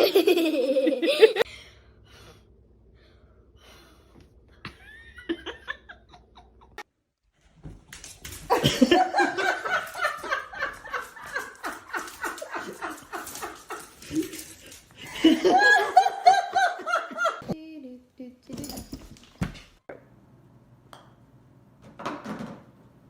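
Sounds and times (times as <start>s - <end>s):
person laughing hard: 15.1s - 17.5s.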